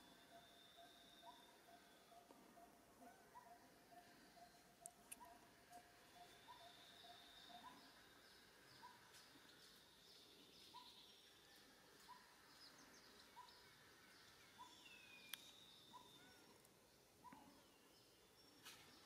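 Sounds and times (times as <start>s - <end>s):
faint bird calls: 0.0s - 9.6s.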